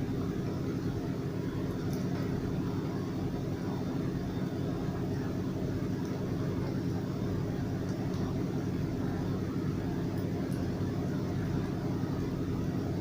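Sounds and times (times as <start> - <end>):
stove low rumbling hum: 0.0 - 13.0.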